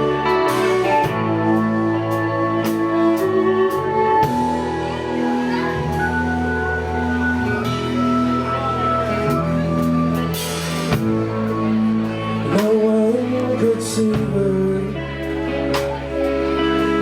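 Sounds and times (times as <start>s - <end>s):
live rock band playing: 0.0s - 17.0s
person singing: 7.6s - 17.0s.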